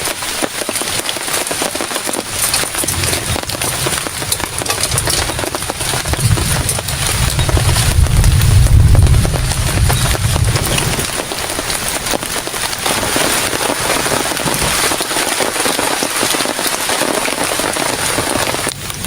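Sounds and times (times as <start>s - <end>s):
heavy rain falling: 0.0s - 19.0s
low rumble: 2.8s - 11.2s.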